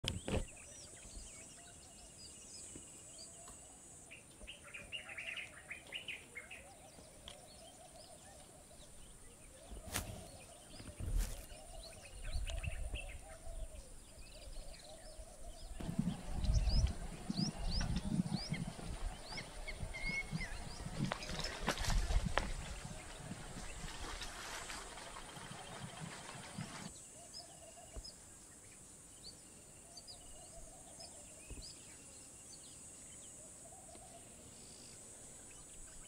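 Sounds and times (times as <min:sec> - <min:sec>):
small birds chirping: 0:00.0 - 0:36.0
low rumbling noise: 0:15.6 - 0:26.9.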